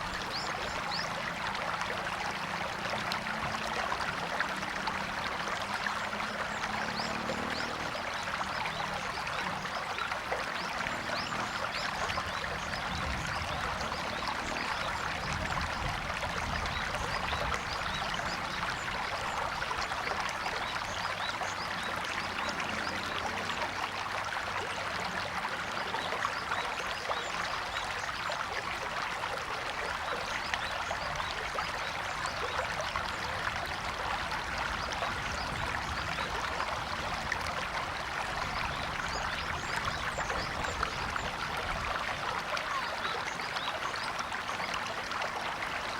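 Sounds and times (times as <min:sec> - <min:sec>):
river water splashing over rocks: 0:00.0 - 0:45.9.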